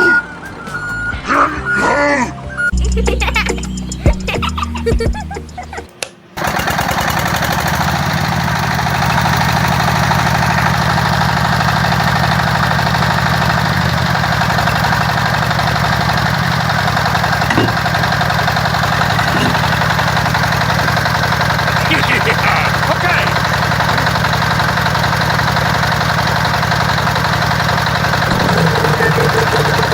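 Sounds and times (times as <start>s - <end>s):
music: 0.0s - 5.9s
small engine running: 6.4s - 29.9s.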